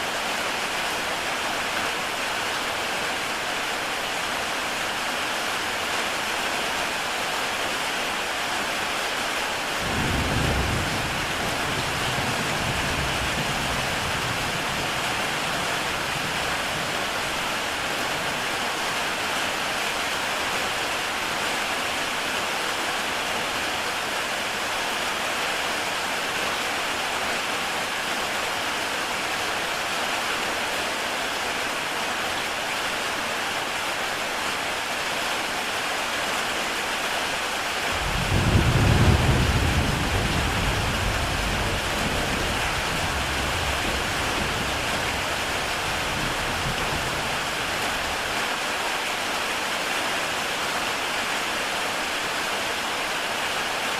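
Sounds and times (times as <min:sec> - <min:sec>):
heavy rain on a tile roof: 0:00.0 - 0:53.9
thunder rumbling: 0:09.8 - 0:17.0, 0:37.9 - 0:48.2.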